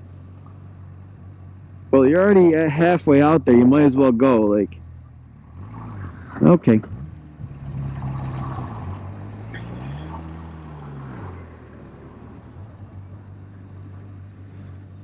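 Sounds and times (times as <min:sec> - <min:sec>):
motorcycle engine running: 0:09.1 - 0:15.0.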